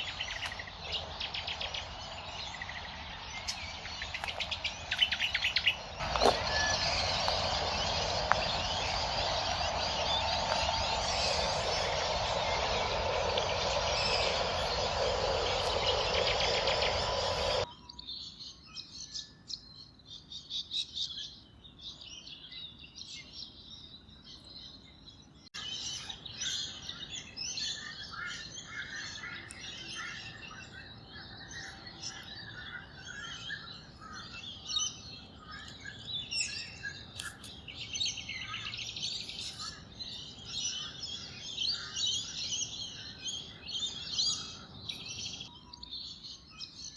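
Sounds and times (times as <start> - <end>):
loud even rushing noise: 0.0 - 17.7
small birds chirping: 0.0 - 46.9.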